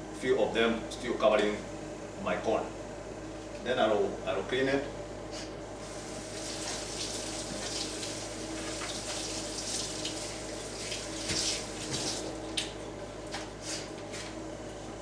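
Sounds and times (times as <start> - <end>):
tap water splashing on corn: 6.3 - 13.5.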